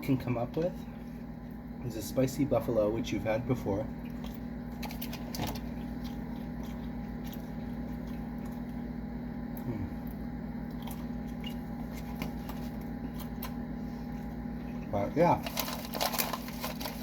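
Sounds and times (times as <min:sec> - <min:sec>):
steady low hum: 0:00.0 - 0:17.0
person chewing food: 0:04.0 - 0:14.9.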